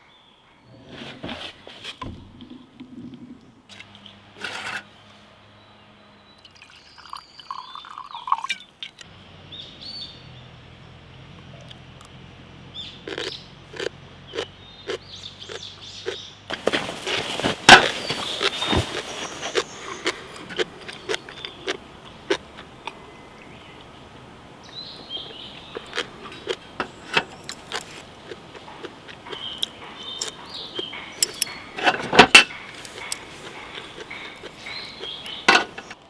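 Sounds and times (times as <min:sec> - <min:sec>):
clatter of objects: 0:04.4 - 0:04.9, 0:16.5 - 0:36.0
small objects clicking and tapping: 0:16.6 - 0:36.0.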